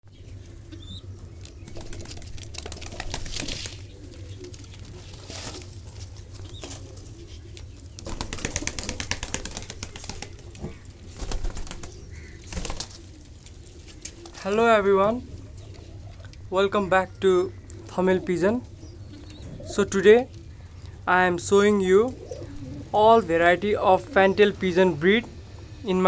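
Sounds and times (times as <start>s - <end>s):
steady low hum: 0.1s - 26.0s
pigeon wings flapping: 1.6s - 7.0s, 7.9s - 13.4s.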